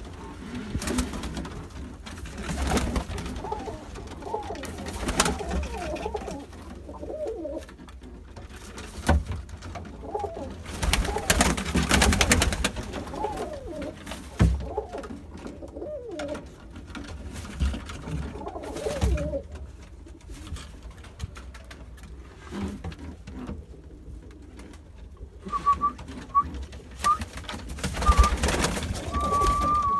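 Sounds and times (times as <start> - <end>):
pigeons cooing: 2.4 - 7.8, 9.8 - 16.7, 18.0 - 20.3, 23.3 - 29.9.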